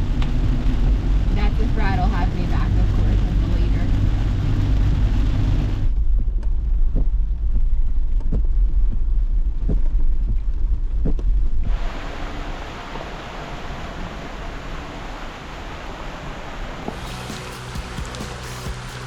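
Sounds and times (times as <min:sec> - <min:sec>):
broad hiss of noise: 0:11.6 - 0:19.0
off-road vehicle rumbling: 0:16.9 - 0:19.0.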